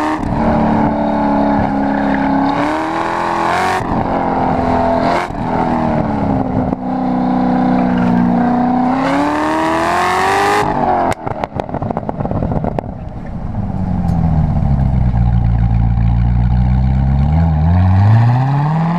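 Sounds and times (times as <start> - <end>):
car engine accelerating: 0.0 - 18.9
exhaust crackling clicks: 11.1 - 17.5.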